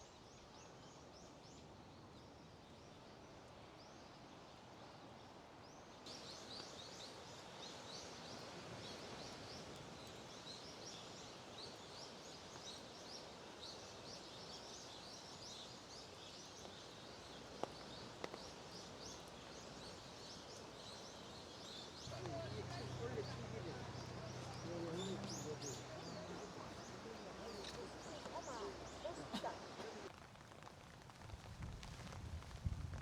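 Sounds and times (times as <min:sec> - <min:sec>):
faint outdoor noise: 0:00.0 - 0:33.0
small birds chirping: 0:05.6 - 0:30.6.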